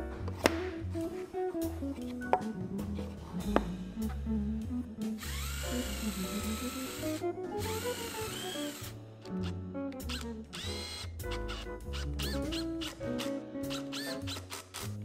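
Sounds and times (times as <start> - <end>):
power drill running: 5.2 - 9.0, 10.1 - 11.6, 13.9 - 14.8.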